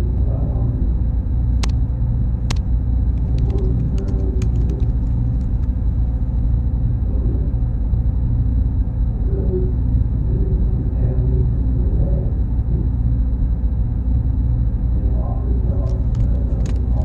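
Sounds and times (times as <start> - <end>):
high-pitched whine: 0.0 - 17.0
machines and cooling fans humming: 0.0 - 17.0
sharp clicks: 1.6 - 1.8, 2.4 - 5.8, 15.8 - 17.0
light clicks: 2.4 - 5.8, 15.8 - 16.9.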